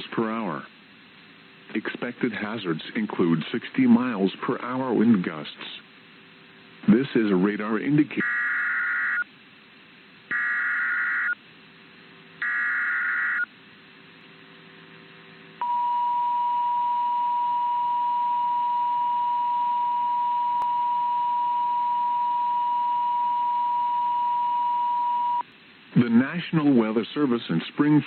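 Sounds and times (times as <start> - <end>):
steady warning alarm tone: 8.2 - 9.2, 10.3 - 11.4, 12.4 - 13.5.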